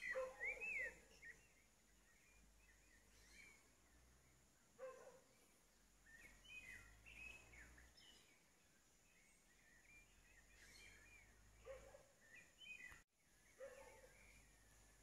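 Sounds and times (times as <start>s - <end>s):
low bird call: 0.0s - 1.5s
birds chirping and warbling: 0.0s - 15.0s.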